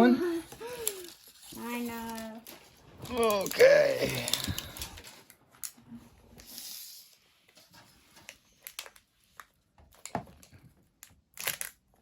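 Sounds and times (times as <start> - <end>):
plastic packaging crinkling: 0.6 - 5.4.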